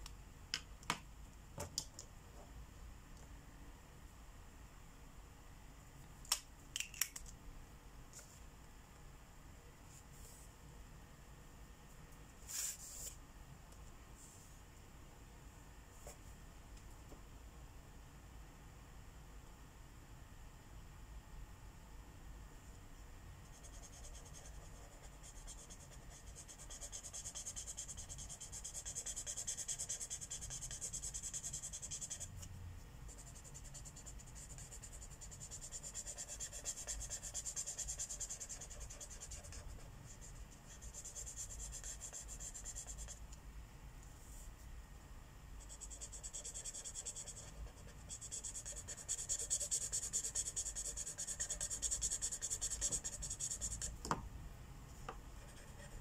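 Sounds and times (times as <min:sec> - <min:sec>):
marker rubbing on paper: 0:23.6 - 0:32.3, 0:33.1 - 0:43.2, 0:45.6 - 0:53.9.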